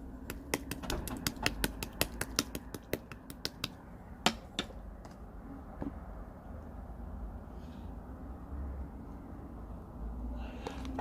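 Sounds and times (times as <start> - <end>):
slime clicking and popping: 0.3 - 3.8.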